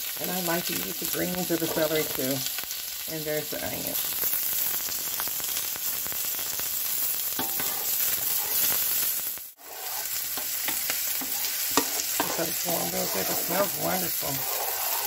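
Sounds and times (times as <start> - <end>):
vegetables sizzling in oil: 0.0 - 15.0
spatula stirring in a pan: 0.2 - 2.7, 7.3 - 15.0.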